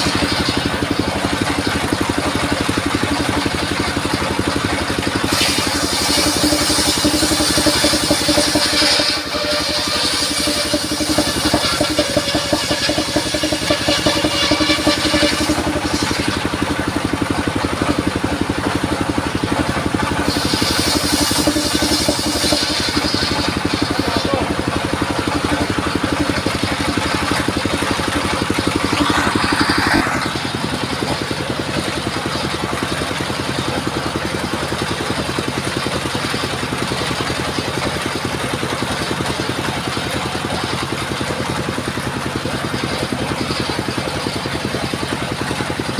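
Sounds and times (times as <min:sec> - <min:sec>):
circular sawmill running: 0:00.0 - 0:45.9
saw blade hissing in the cut: 0:05.2 - 0:16.6, 0:20.2 - 0:24.6.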